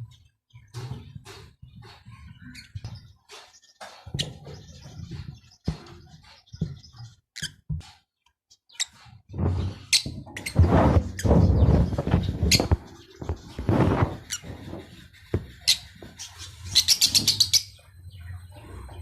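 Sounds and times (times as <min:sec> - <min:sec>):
lovebirds chirping: 0:00.0 - 0:19.0
rustling: 0:09.3 - 0:16.5.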